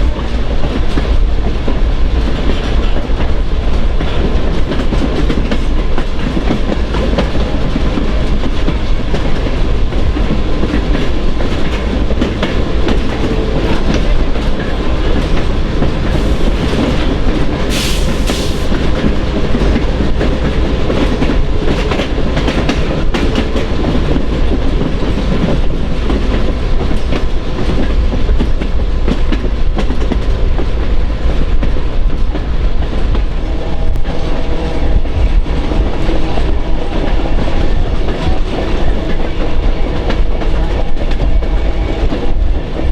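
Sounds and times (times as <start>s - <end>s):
wheels clickety-clack: 0.0s - 33.3s
train rumbling over rails: 0.0s - 42.9s.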